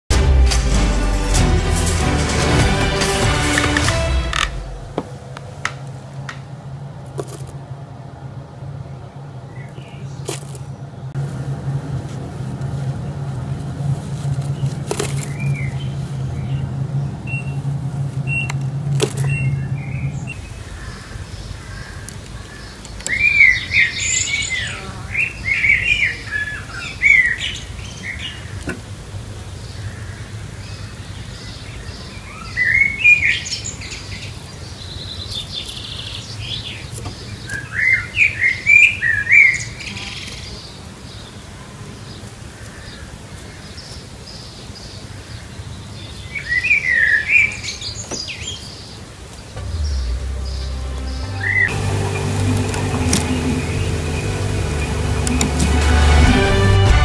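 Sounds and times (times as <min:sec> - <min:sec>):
low hum: 0:00.1 - 0:07.0, 0:49.6 - 0:57.0.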